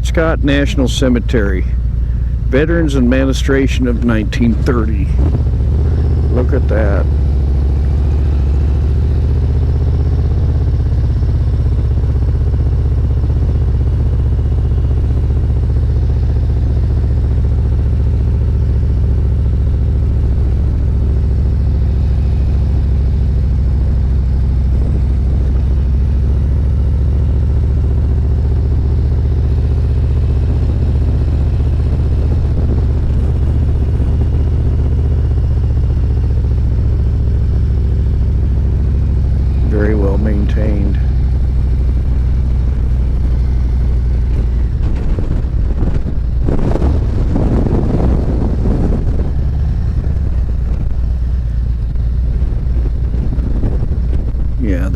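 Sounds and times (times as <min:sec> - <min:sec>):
motorcycle engine low rumble: 0:00.0 - 0:54.9.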